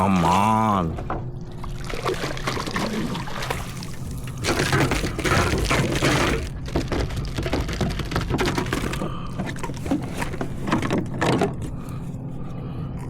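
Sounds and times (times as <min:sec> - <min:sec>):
fish splashing in water: 0:01.5 - 0:08.2.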